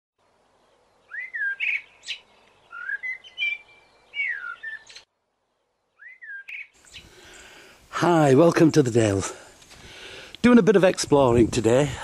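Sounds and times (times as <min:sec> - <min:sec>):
bird chirps and buzzy notes: 0:00.4 - 0:07.6
bird whistle rising and falling: 0:01.1 - 0:05.1, 0:06.0 - 0:07.1.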